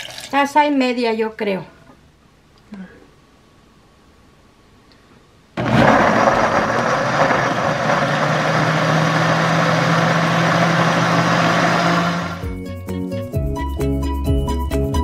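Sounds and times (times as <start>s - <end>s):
blender running: 5.6s - 12.5s.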